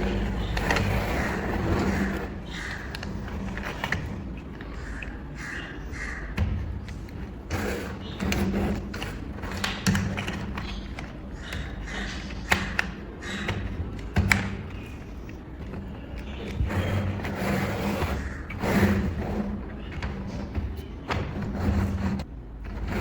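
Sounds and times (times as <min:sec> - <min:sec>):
handling noise: 0:00.0 - 0:23.0
plastic bricks snapping together: 0:08.3 - 0:16.6.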